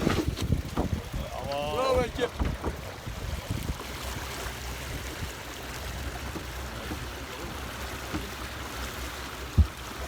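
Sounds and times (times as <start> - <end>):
wind rumbling on microphone: 0.0 - 3.8
water rushing along boat hull: 0.0 - 10.0.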